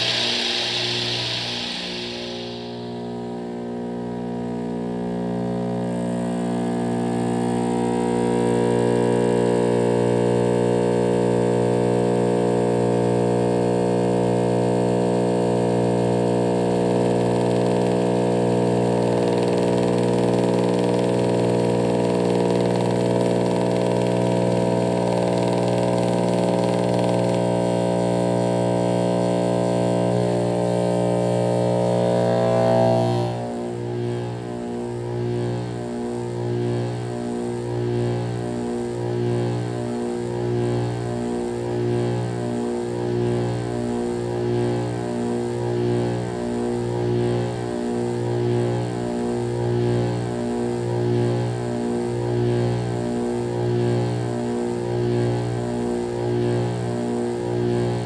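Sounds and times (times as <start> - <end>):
heat pump humming: 0.0 - 3.4.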